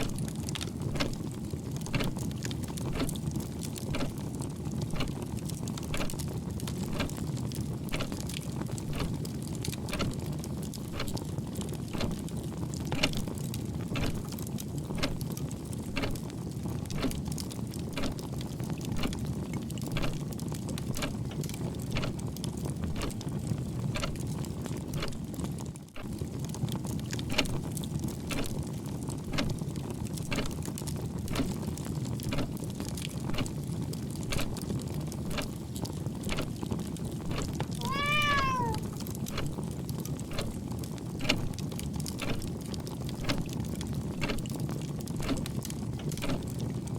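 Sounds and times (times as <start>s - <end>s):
fireplace crackling and popping: 0.0s - 46.9s
cat meowing: 37.8s - 38.9s.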